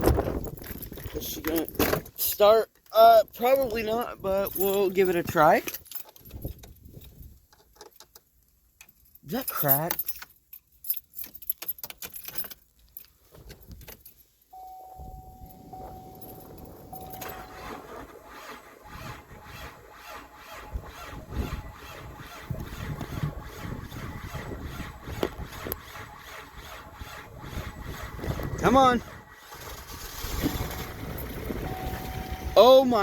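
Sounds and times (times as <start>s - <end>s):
car engine cranking without starting: 0.0s - 8.2s, 14.6s - 33.0s
keys jingling: 3.6s - 8.1s, 8.8s - 14.3s, 15.1s - 17.5s
steady chime tone: 14.6s - 17.5s, 31.6s - 32.7s.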